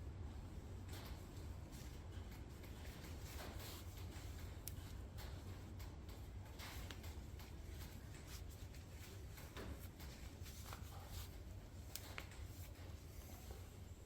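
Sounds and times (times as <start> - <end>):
steady low hum: 0.0 - 14.0
soft rubbing: 6.7 - 14.0.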